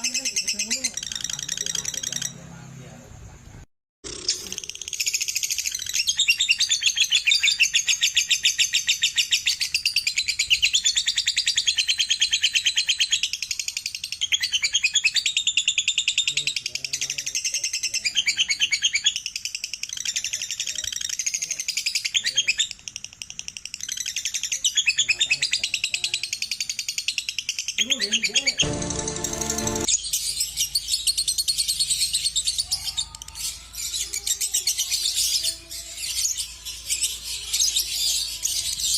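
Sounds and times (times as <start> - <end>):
lovebird chattering trill: 0.0 - 2.5, 4.1 - 28.7.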